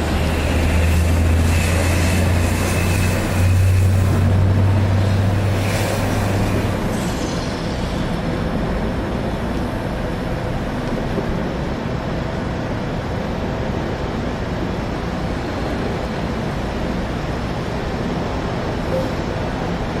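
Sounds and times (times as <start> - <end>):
truck wash rushing noise: 0.0 - 20.0.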